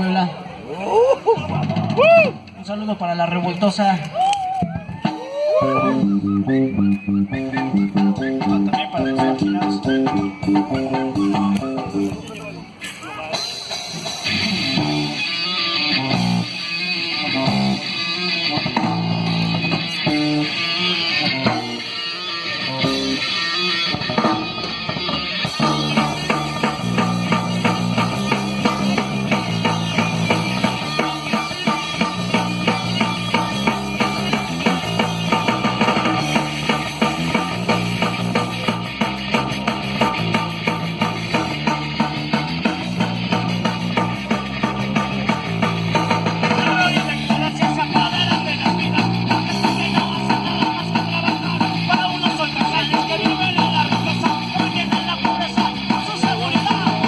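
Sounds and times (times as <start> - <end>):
bass guitar: 0.0 - 57.0
rock band playing: 4.7 - 57.0
electric guitar: 13.7 - 57.0
fast drum beat: 25.5 - 57.0.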